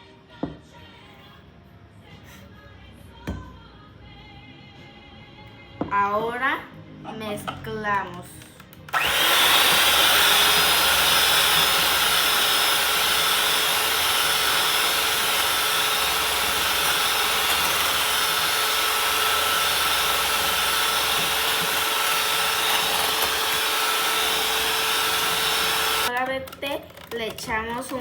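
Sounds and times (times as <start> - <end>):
electric hand mixer beating batter: 8.9 - 28.0.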